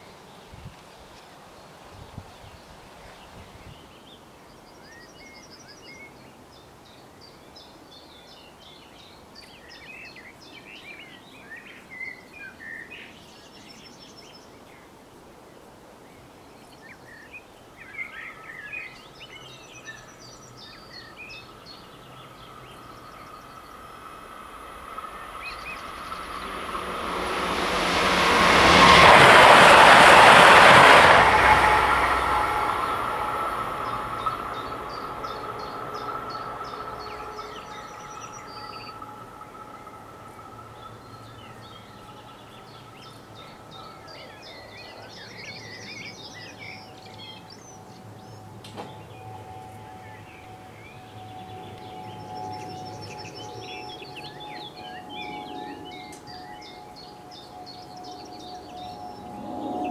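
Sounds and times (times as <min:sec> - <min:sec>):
birds singing: 0:16.2 - 0:27.1, 0:32.5 - 0:59.9
electric train passing: 0:17.0 - 0:59.9
thin steady tone: 0:47.5 - 0:59.9.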